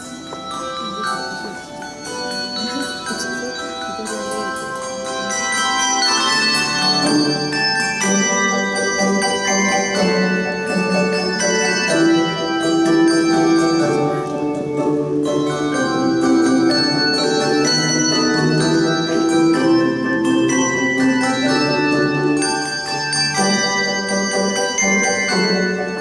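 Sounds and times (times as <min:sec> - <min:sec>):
deep bass bells: 0:00.0 - 0:26.0
handbell choir playing: 0:00.0 - 0:26.0.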